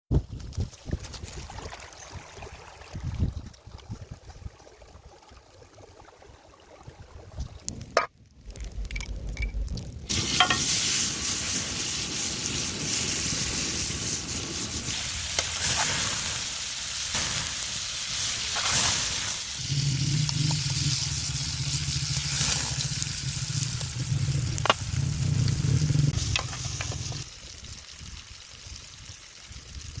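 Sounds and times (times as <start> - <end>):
egg and tomato sizzling in a pan: 9.5 - 30.0.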